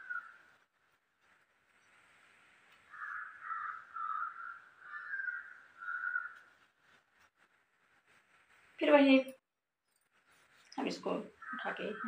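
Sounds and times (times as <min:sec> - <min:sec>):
bird calling: 0:00.0 - 0:00.6, 0:02.8 - 0:06.7.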